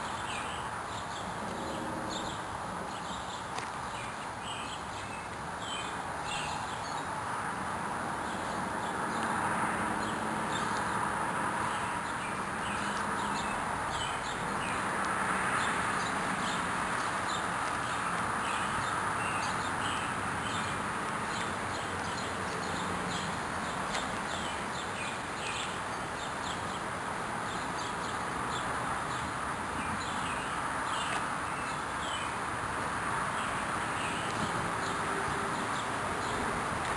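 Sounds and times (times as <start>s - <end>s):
small birds chirping: 15.4s - 32.4s.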